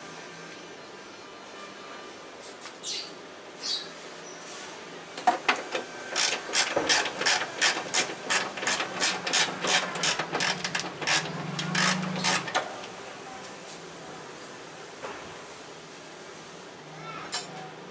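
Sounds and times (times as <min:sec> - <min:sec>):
ratchet wrench clicking: 0:06.1 - 0:12.6.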